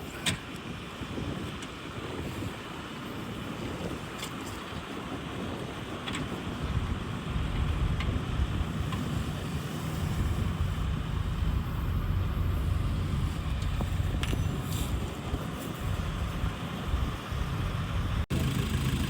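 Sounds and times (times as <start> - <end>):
truck engine rumbling: 5.9 - 19.0.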